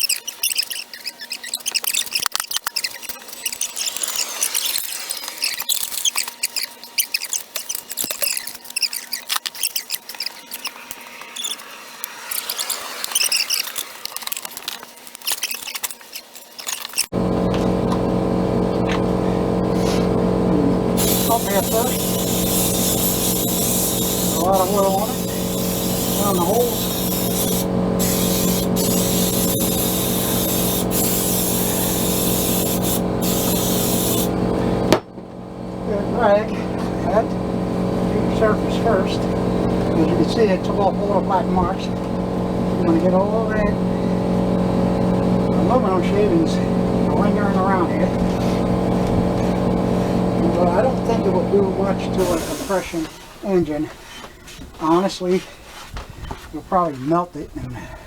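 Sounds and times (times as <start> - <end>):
metal squeaks and scratches: 0.0 - 11.7, 12.3 - 14.4, 15.2 - 17.1
motor hum: 16.8 - 53.2
high-pressure spray hissing: 18.8 - 34.8, 47.7 - 53.0.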